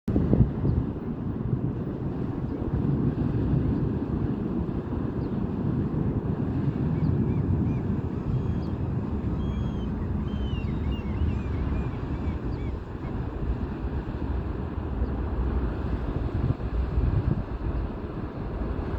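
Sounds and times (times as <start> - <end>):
wind on microphone: 0.1 - 18.9
ship engine rumble: 0.2 - 18.9
small birds chirping: 7.0 - 13.1.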